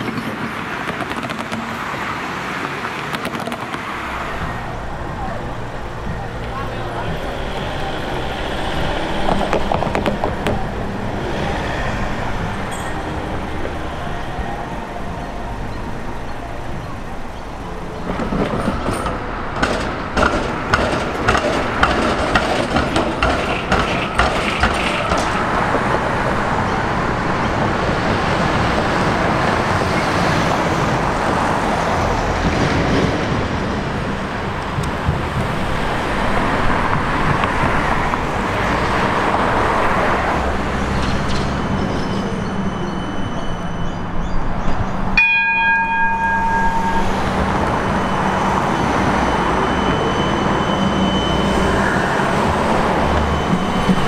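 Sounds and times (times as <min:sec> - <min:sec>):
train running rumble: 0:00.0 - 0:54.0
steady high tones: 0:04.0 - 0:20.2, 0:45.1 - 0:54.0
train wheels clattering over joints: 0:15.7 - 0:28.6.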